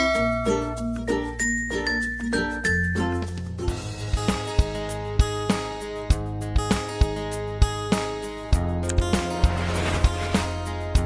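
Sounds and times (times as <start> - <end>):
bass drum beat: 3.7 - 7.9.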